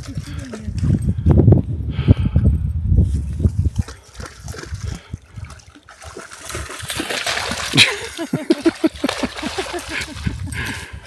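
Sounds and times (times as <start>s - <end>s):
dog splashing through shallow water: 0.0s - 1.0s, 3.6s - 10.7s.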